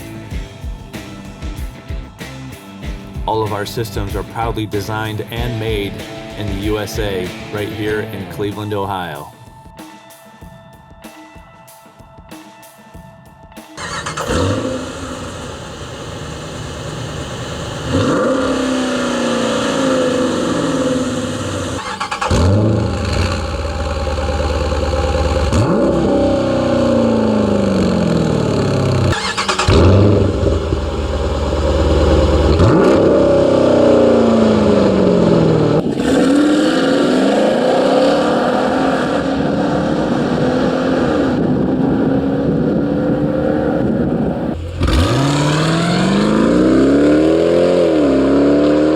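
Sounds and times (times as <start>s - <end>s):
engine revving: 3.3s - 8.8s, 13.8s - 48.9s.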